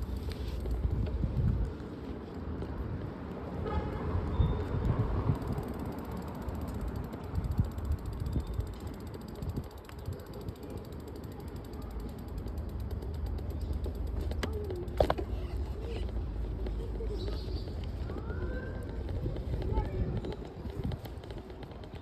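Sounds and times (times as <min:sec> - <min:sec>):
road and wind rumble: 0:00.0 - 0:22.0
bicycle freewheel ticking: 0:05.3 - 0:14.9.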